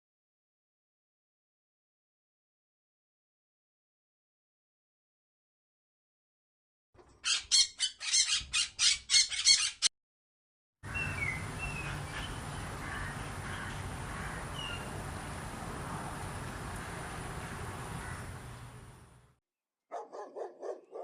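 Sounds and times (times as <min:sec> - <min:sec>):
bird squawking harshly: 0:07.2 - 0:09.9
outdoor background noise: 0:10.8 - 0:21.0.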